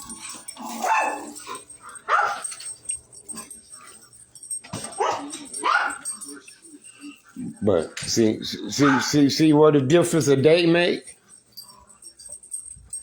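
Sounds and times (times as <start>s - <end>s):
dog barking: 0.6s - 2.6s, 4.8s - 6.4s, 8.7s - 9.2s.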